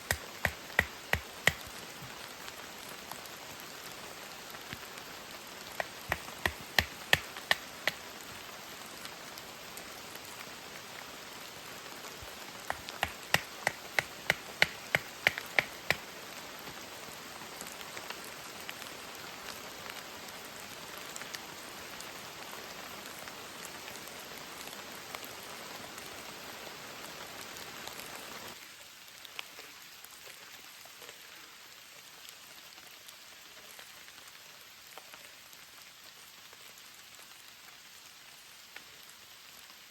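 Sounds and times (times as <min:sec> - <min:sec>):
sharp taps: 0:00.0 - 0:01.7, 0:05.8 - 0:08.0, 0:12.7 - 0:16.0
heavy rain falling: 0:00.0 - 0:29.1.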